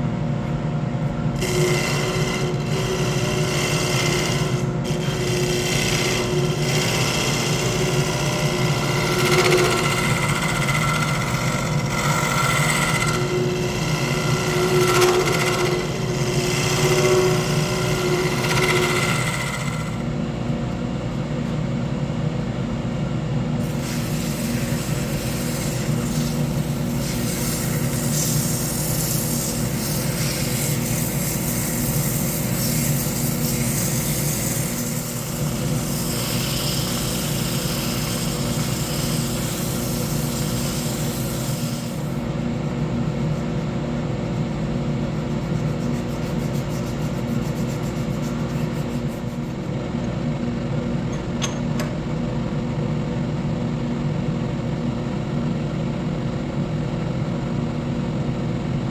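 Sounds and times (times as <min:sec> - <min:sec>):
tool hissing on spinning wood: 0:01.4 - 0:20.1, 0:23.6 - 0:49.8
wood lathe motor hum: 0:01.4 - 0:20.5, 0:23.6 - 0:51.6.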